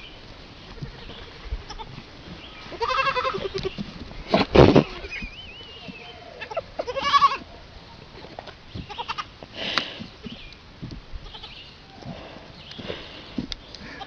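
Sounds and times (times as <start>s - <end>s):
animal bleat-like call: 2.7s - 3.8s, 5.8s - 7.5s.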